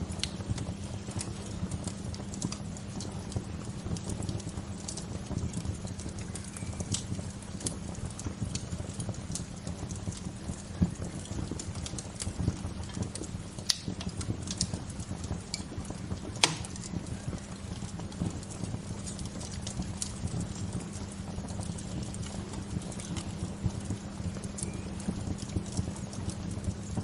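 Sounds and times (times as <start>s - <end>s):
sharp pops and snaps: 0.0s - 27.0s
wood fire crackling: 0.0s - 27.0s.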